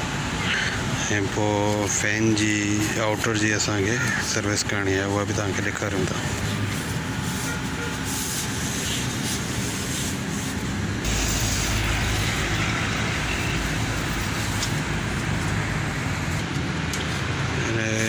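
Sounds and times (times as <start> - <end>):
steady background noise: 0.0 - 18.0
deep low rumble: 10.9 - 16.4.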